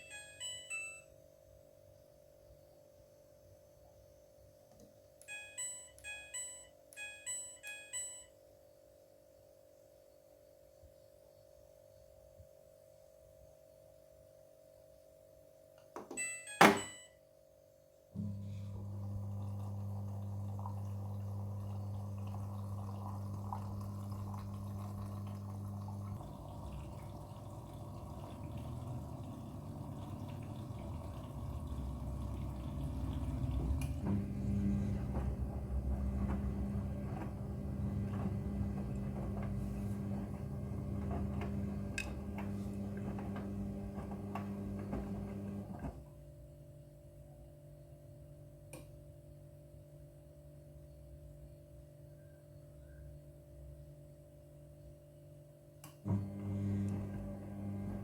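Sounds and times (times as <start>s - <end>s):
washing machine inlet valve hum: 18.2s - 45.8s, 56.0s - 58.0s
water running and splashing: 19.4s - 34.1s.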